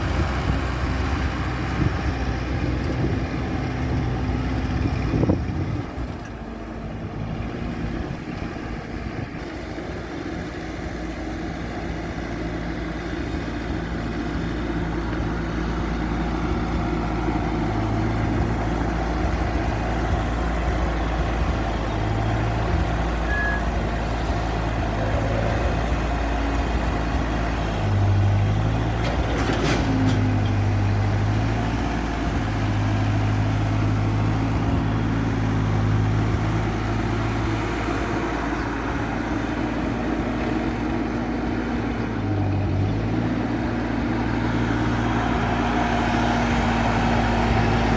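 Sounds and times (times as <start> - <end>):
tractor engine running: 0.0 - 47.9.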